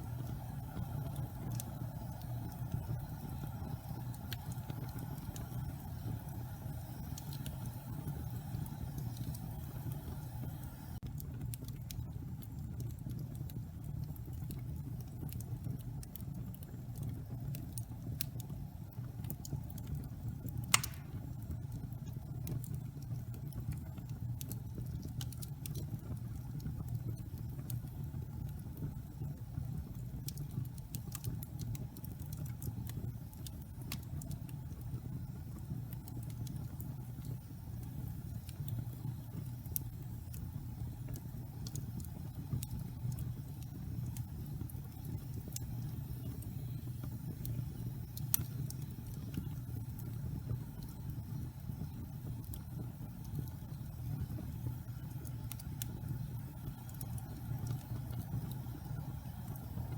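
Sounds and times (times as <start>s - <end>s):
low rumble of fire: 0.0s - 59.9s
small fire crackles: 0.0s - 59.9s
loud fire pop: 20.7s - 21.3s.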